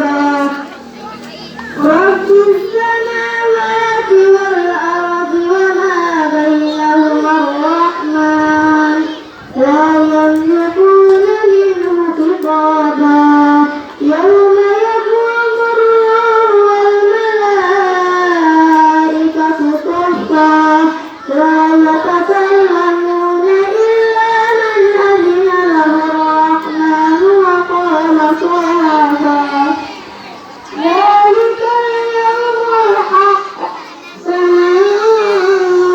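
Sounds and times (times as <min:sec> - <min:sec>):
girl chanting recitation: 0:00.0 - 0:35.9.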